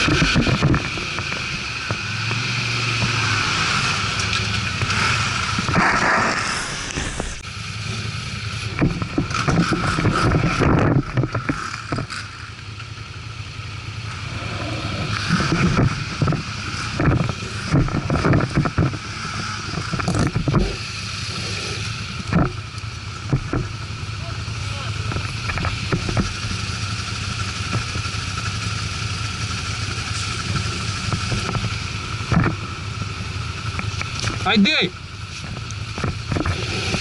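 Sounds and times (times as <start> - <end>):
atv engine running: 0.0 - 37.0
knocks and thumps: 15.4 - 20.8, 23.2 - 23.8.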